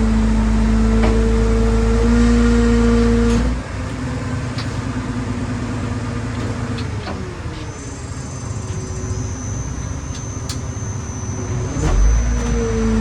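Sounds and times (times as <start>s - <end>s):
truck engine whining hum: 0.0s - 13.0s.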